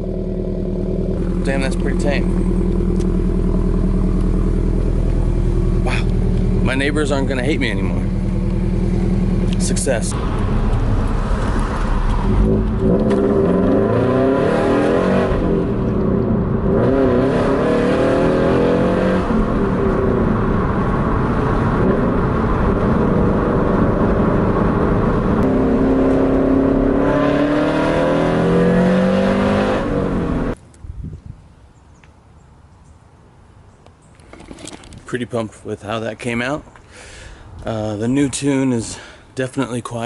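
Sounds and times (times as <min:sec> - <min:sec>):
car engine revving: 0:00.0 - 0:30.6.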